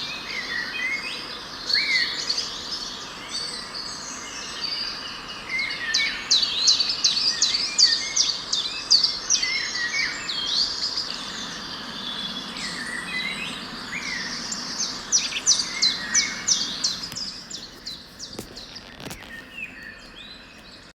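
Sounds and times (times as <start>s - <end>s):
steady outdoor hiss: 0.0s - 20.9s
birds chirping: 7.9s - 20.9s.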